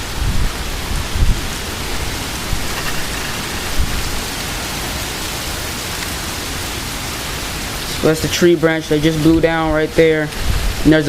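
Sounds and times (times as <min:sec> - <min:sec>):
low thumps: 0:00.0 - 0:05.5
gusting wind: 0:00.0 - 0:11.0
heavy rain: 0:00.0 - 0:11.0.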